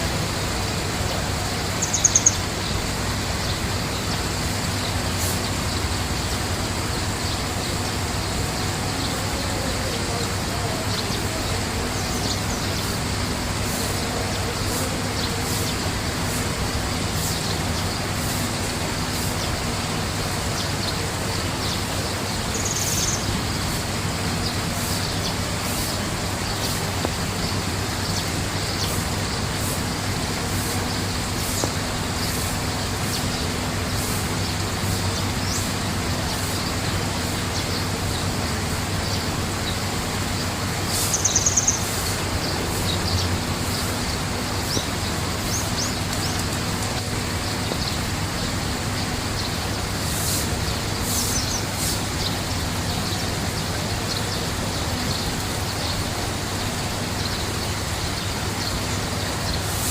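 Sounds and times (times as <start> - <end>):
birds chirping faintly: 0.0 - 59.9
steady rushing noise: 0.0 - 59.9
high bird trills: 1.2 - 16.4, 40.4 - 48.0.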